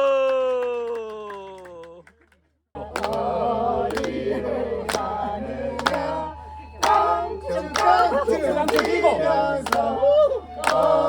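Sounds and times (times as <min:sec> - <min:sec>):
group of voices singing: 0:02.8 - 0:11.0.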